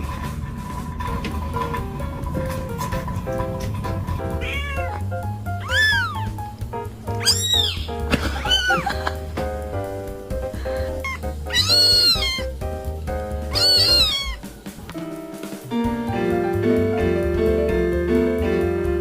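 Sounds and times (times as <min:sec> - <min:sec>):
background music: 0:00.1 - 0:19.0
cat meowing: 0:04.3 - 0:05.0, 0:05.6 - 0:06.4, 0:07.2 - 0:08.9, 0:11.0 - 0:12.6, 0:13.5 - 0:14.5.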